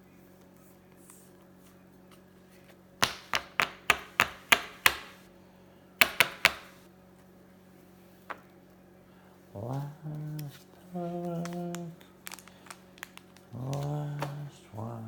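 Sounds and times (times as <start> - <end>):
sharp knocks on hard surface: 6.0 - 6.8.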